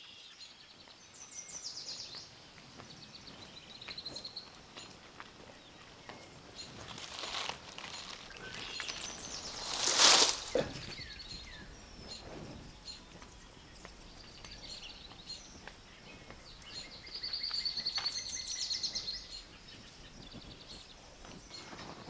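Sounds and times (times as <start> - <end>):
bird trilling song: 0.0 - 22.0
birds chirping: 0.0 - 22.0
dry palm fronds rustling: 5.0 - 11.3.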